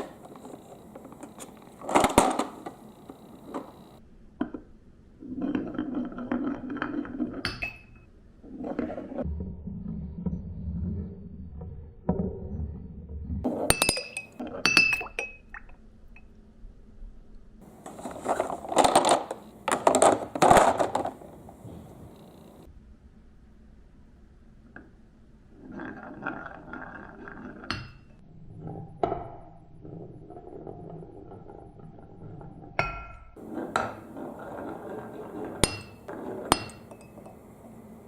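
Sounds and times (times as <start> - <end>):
marbles rolling on track: 17.8 - 21.5, 25.6 - 27.7, 33.4 - 37.3
marbles clattering: 17.8 - 21.6.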